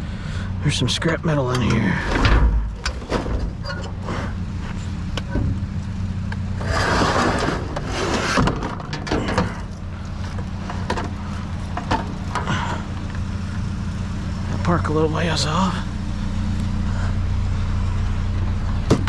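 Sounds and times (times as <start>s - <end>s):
truck engine idling: 0.0s - 19.0s.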